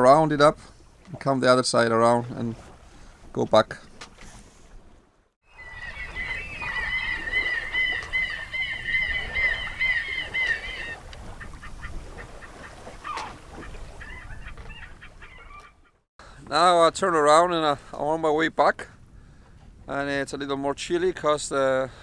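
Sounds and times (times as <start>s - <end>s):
water birds calling: 0.0s - 20.2s
wind and water rumble: 0.0s - 22.0s.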